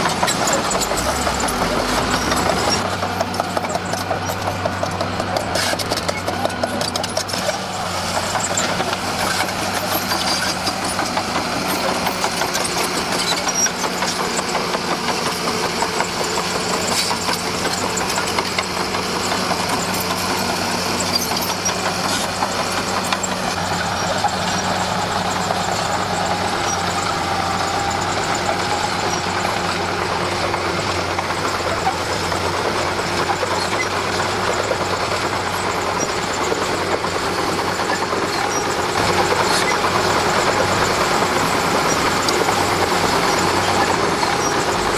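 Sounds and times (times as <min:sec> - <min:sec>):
dozer diesel engine running: 0:00.0 - 0:44.9.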